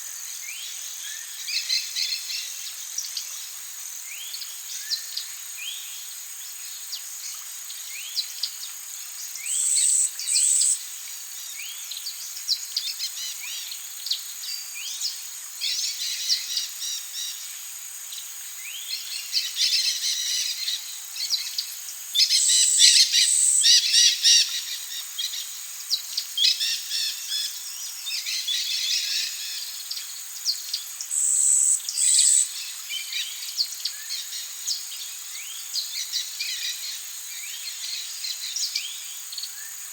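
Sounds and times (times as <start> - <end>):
high-pitched insect drone: 9.4 - 11.2, 19.2 - 30.5, 31.1 - 35.4.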